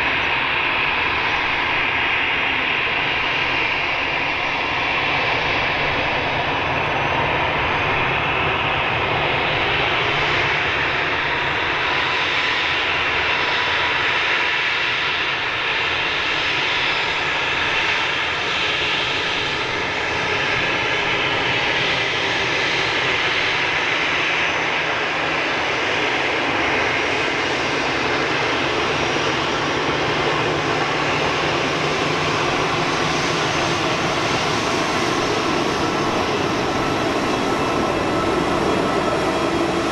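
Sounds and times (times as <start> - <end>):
jet engines running steadily: 0.0 - 39.9.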